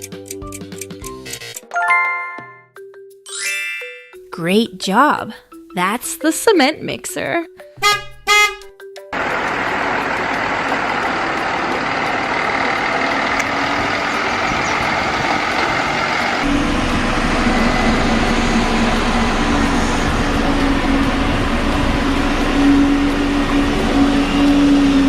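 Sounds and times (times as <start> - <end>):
cement mixer truck engine running: 9.2 - 25.0.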